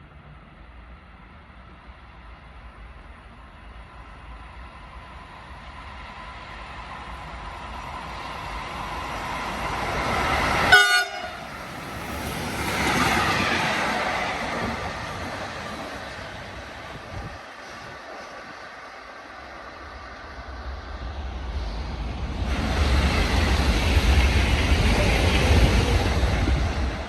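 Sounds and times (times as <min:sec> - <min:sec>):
train passing by: 0:00.0 - 0:27.0
train horn toot: 0:10.7 - 0:11.5.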